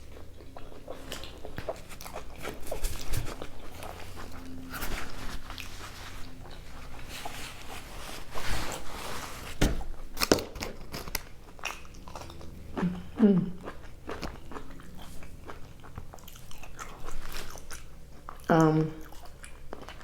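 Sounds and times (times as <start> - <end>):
wet chewing and lip smacks: 0.0 - 4.7, 10.0 - 20.0.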